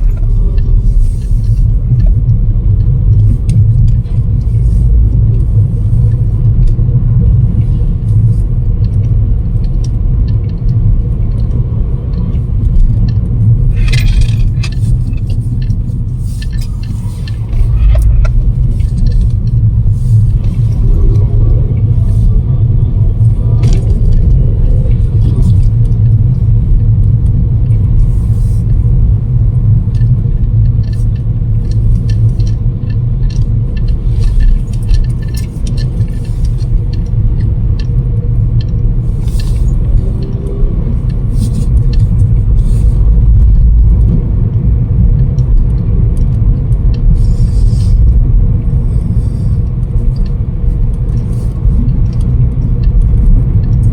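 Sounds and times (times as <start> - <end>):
wind buffeting microphone: 0.0 - 28.0
scattered clicks: 0.0 - 53.9.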